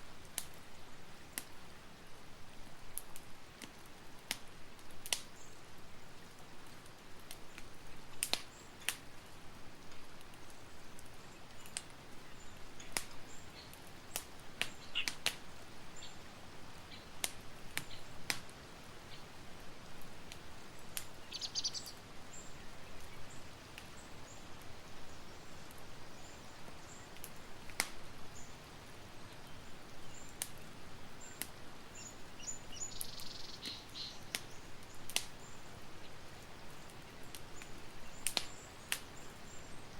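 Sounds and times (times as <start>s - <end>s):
campfire crackling: 0.0s - 39.9s
high bird chirps: 21.2s - 22.0s, 32.4s - 34.3s.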